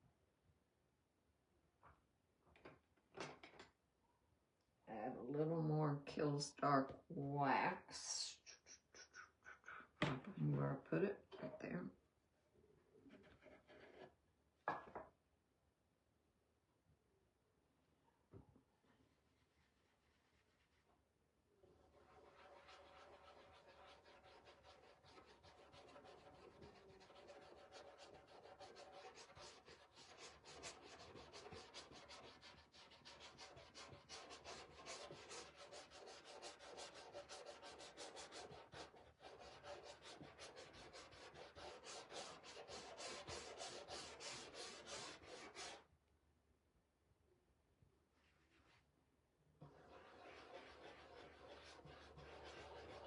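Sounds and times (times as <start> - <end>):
wax rubbed on painted surface: 18.8 - 21.0, 21.7 - 45.8, 48.1 - 48.9, 49.6 - 53.0.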